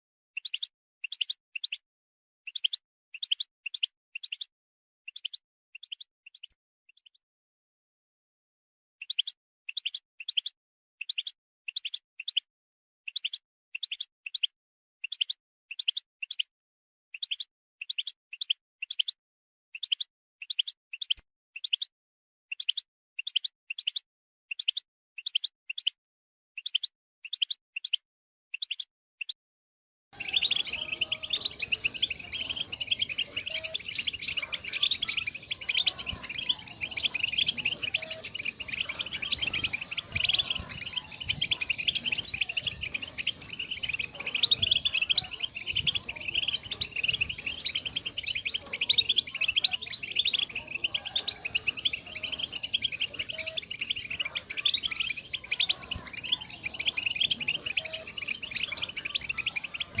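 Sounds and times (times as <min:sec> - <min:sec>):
goldfinch twittering song: 0:00.4 - 0:01.8, 0:02.5 - 0:04.5, 0:05.1 - 0:07.2, 0:09.0 - 0:12.5, 0:13.1 - 0:16.5, 0:17.2 - 0:19.2, 0:19.8 - 0:21.9, 0:22.5 - 0:26.0, 0:30.2 - 1:00.0.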